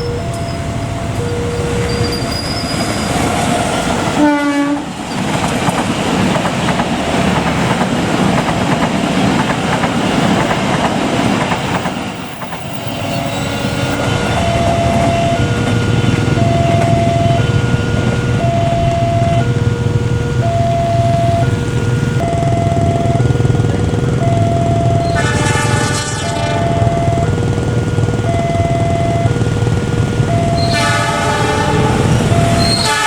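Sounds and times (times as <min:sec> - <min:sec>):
two-tone electronic warning alarm: 0:00.0 - 0:04.8, 0:11.5 - 0:33.0
train wheels and carriages passing: 0:00.0 - 0:33.0
train horn blast: 0:01.3 - 0:05.0, 0:12.7 - 0:22.3, 0:25.0 - 0:27.3, 0:30.3 - 0:33.0.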